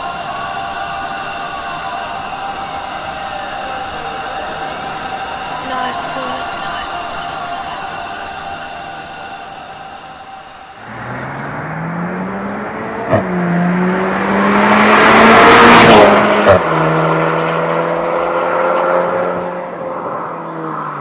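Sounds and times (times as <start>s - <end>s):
car engine accelerating: 10.6s - 21.0s.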